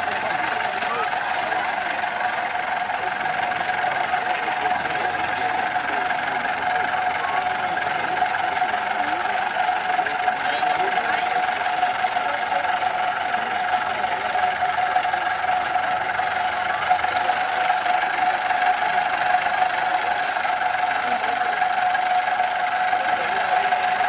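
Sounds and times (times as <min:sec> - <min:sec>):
truck diesel engine running: 0:00.0 - 0:24.0.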